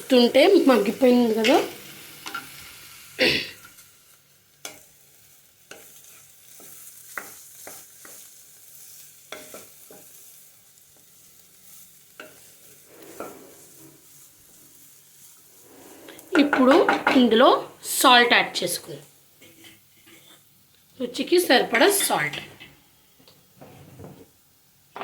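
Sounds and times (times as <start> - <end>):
carrots sizzling in a pan: 0.0 - 23.6, 24.2 - 25.0
spatula scraping a pan: 5.6 - 10.5, 11.1 - 17.4, 19.4 - 20.5.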